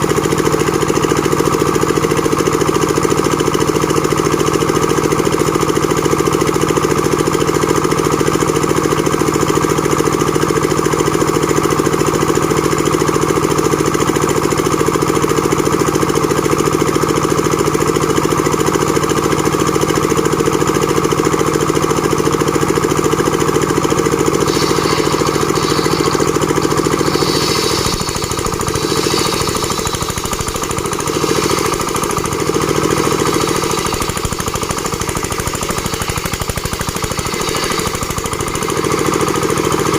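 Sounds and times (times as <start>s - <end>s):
sawmill machine humming: 23.4s - 39.9s.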